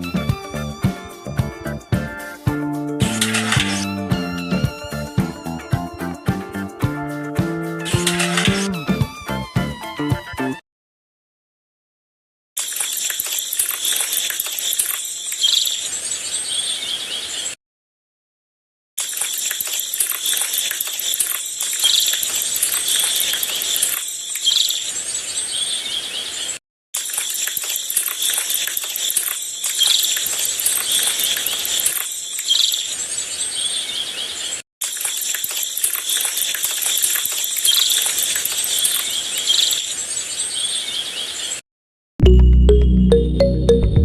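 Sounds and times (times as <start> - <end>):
music: 0.0 - 10.6, 42.2 - 44.0.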